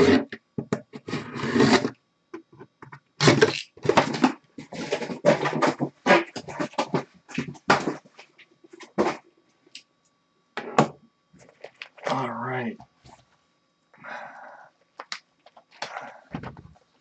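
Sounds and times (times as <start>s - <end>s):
packaging rustling and scraping: 1.0s - 2.0s, 3.2s - 9.3s, 11.4s - 12.1s.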